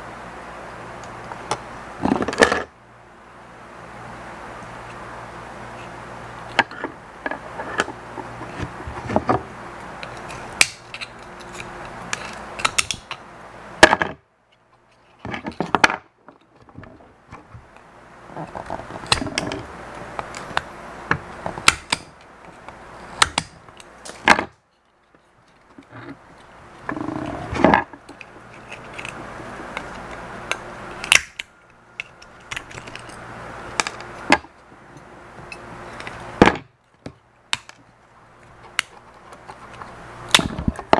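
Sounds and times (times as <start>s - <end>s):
small parts and tools clicking: 9.8s - 13.2s, 17.4s - 40.9s.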